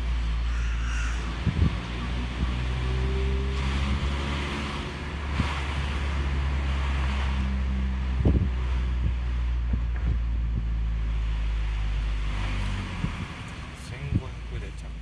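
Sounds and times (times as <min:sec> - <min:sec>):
car exhaust drone: 0:00.0 - 0:15.0
wind and road noise: 0:00.0 - 0:15.0
low thump: 0:08.2 - 0:11.0.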